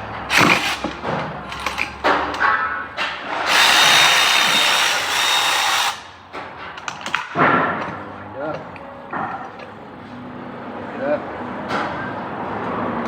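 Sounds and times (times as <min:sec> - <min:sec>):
power tool whining: 0:00.3 - 0:01.8, 0:03.4 - 0:06.1.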